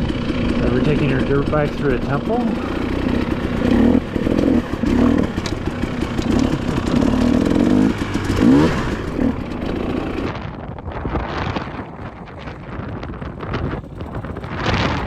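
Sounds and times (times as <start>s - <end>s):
dirt bike engine revving: 0.0s - 10.6s.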